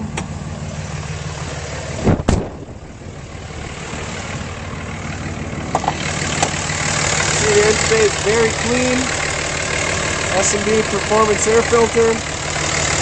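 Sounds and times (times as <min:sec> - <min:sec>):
diesel engine idling: 0:00.0 - 0:13.0
loud thump: 0:02.0 - 0:02.8.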